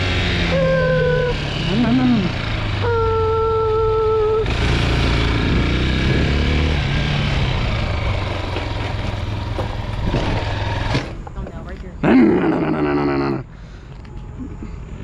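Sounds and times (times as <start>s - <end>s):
dirt bike engine revving: 0.0s - 11.3s.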